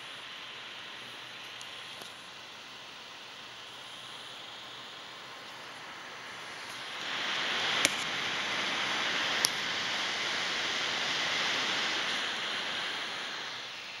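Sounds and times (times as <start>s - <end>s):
laptop cooling fan blowing: 0.0s - 14.0s.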